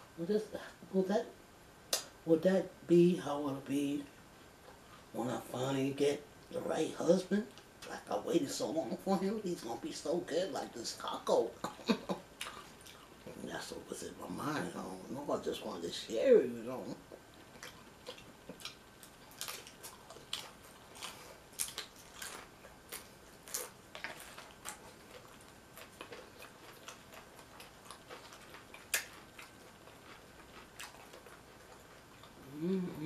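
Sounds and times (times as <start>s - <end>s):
chips crunching while chewed: 17.5s - 32.4s.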